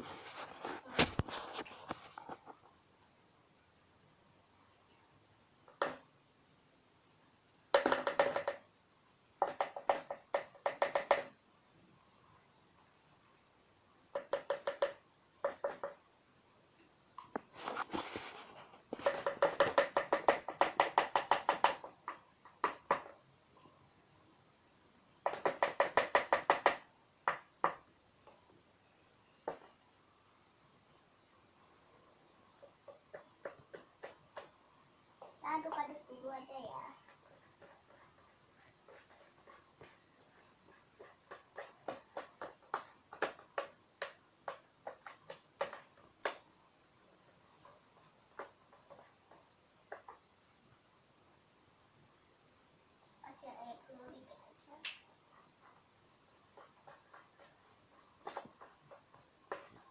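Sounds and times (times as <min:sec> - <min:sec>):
scraping rustle: 0:00.0 - 0:02.7, 0:17.5 - 0:19.2.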